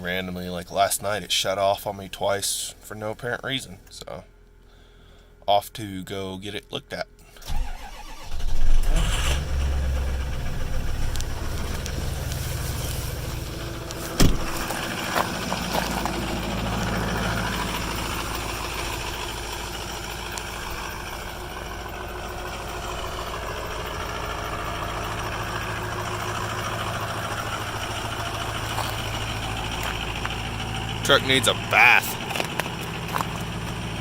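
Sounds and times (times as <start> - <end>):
truck engine idling: 7.2 - 34.0.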